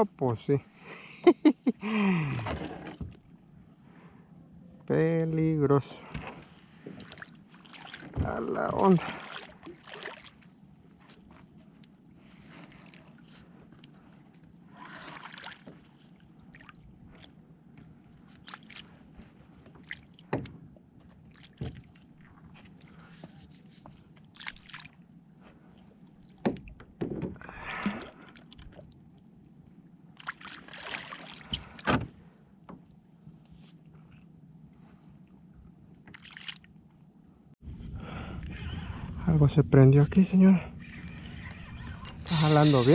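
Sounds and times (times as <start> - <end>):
water sloshing around kayak: 5.9 - 37.2.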